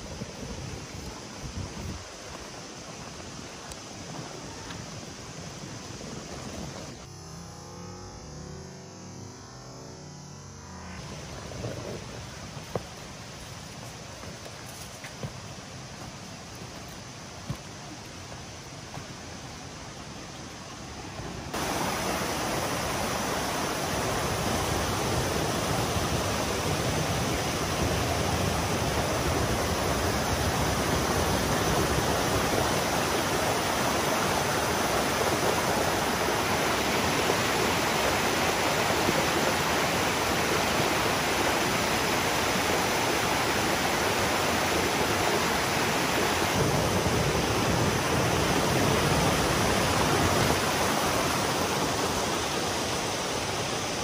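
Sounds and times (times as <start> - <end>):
waterfall rushing: 15.4 - 54.0.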